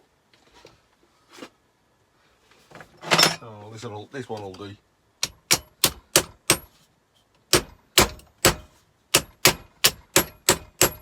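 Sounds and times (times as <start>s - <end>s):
hammer striking metal pin: 5.2s - 6.7s, 7.5s - 11.0s.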